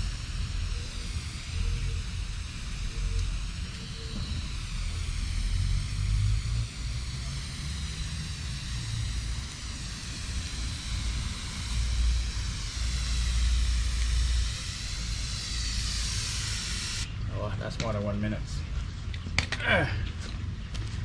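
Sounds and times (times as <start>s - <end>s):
hose nozzle misting water: 0.0s - 17.1s.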